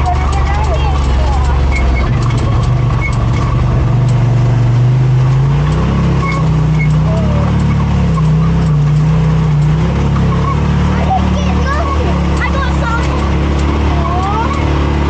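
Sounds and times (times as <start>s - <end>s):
utility vehicle engine running: 0.0s - 15.0s.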